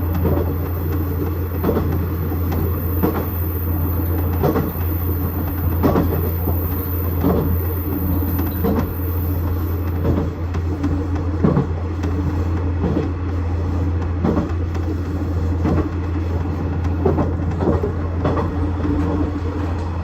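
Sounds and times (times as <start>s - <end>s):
wheels clacking over rail joints: 0.0s - 12.2s, 16.7s - 20.0s
low diesel engine hum: 0.0s - 20.0s.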